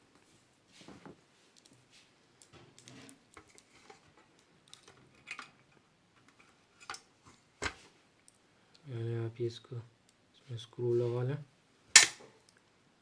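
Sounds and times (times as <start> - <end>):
rustling of parts and cord: 0.2 - 8.4.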